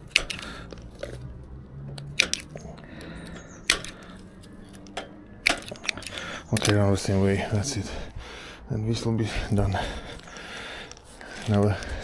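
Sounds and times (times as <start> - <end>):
cutter snipping cable ties: 0.0 - 7.2.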